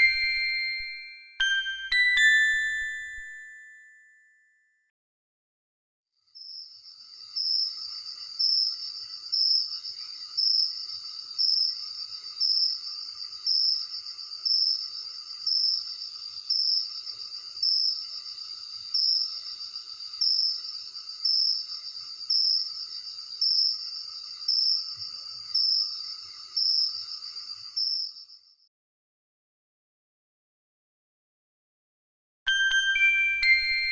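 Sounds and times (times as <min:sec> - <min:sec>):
loud cricket chirp: 0:06.3 - 0:28.7
crickets trilling: 0:06.4 - 0:28.4.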